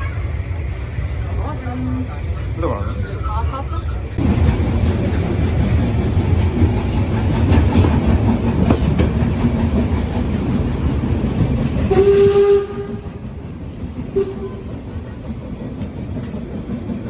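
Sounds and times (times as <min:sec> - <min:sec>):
steam train rumbling: 0:00.0 - 0:17.0
steam whistle blast: 0:11.9 - 0:13.1.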